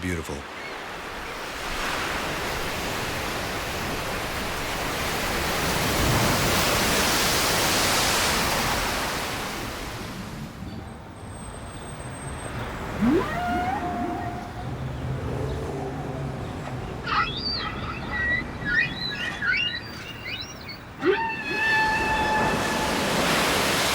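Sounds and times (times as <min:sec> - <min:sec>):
ocean wave washing: 0:00.8 - 0:10.6, 0:12.5 - 0:23.9
short bird call: 0:17.0 - 0:22.9.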